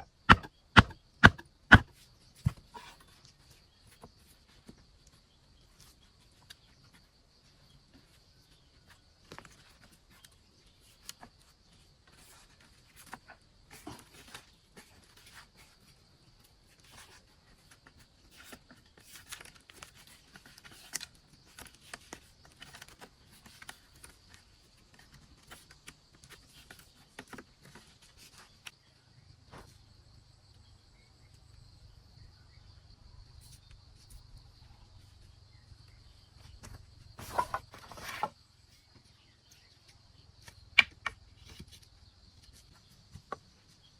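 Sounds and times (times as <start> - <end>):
knocks and rustles: 0.0 - 2.8, 36.4 - 38.4.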